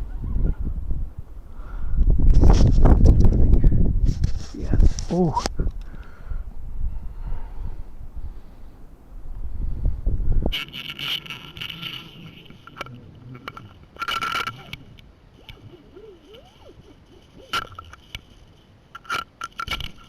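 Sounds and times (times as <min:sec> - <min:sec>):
wind rumble on microphone: 0:00.0 - 0:18.4
fishing reel ratcheting: 0:10.6 - 0:20.0.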